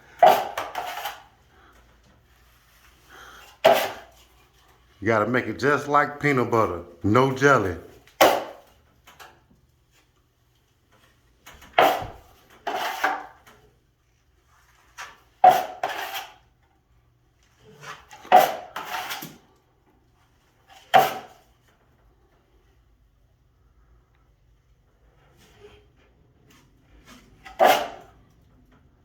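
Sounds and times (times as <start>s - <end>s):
drywall knife scraping and clacking: 0.0s - 4.9s, 8.0s - 9.4s, 10.9s - 13.8s, 14.4s - 16.7s, 17.4s - 19.6s, 20.4s - 21.7s, 25.2s - 28.5s.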